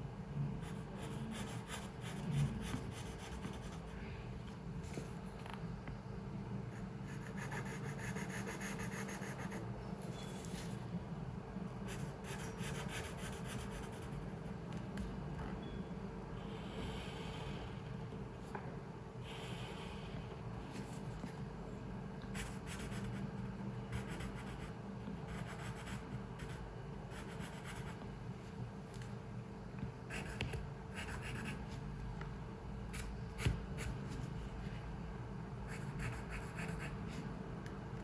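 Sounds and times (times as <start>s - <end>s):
low room hum: 0.0s - 38.0s
pencil scratching on paper: 0.6s - 4.0s, 6.7s - 10.8s, 11.9s - 14.4s, 22.4s - 28.0s, 30.1s - 31.8s, 35.7s - 37.3s.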